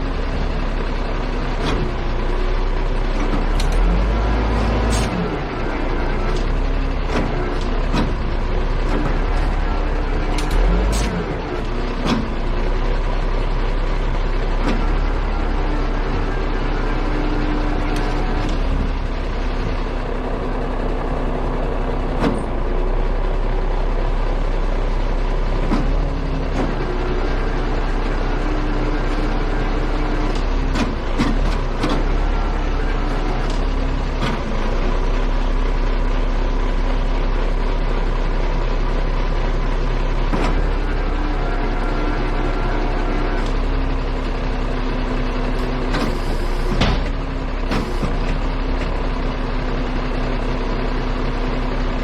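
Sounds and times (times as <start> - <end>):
heavy truck engine running: 0.0 - 52.0
sharp clicks and knocks: 7.1 - 8.2, 12.0 - 12.4, 22.1 - 22.6, 30.2 - 32.1, 45.6 - 48.9.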